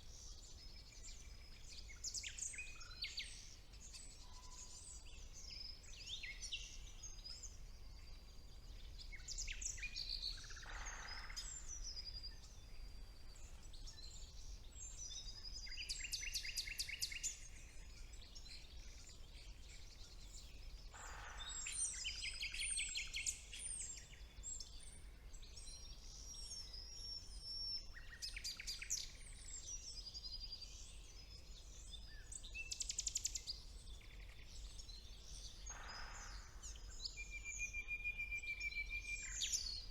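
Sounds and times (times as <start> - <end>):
songbird chorus: 0.0 - 39.9
harsh bird calls: 21.0 - 22.5, 35.7 - 37.8.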